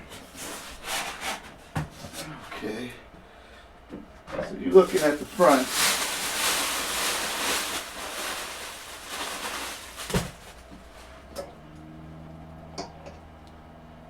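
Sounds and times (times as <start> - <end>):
faint steady hum: 0.0 - 14.0
rustling handling noise: 4.4 - 11.4.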